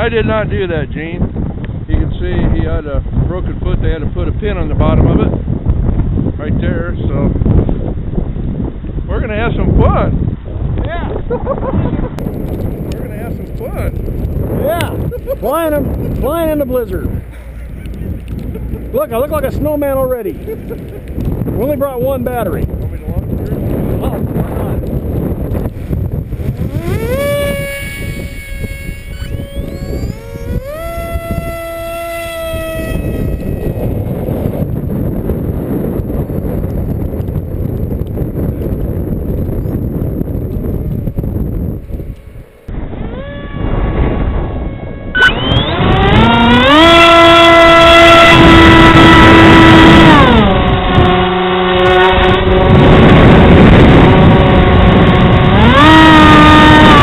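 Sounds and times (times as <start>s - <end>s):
wind buffeting microphone: 0.0s - 57.0s
electric motor and propeller whining: 12.2s - 57.0s.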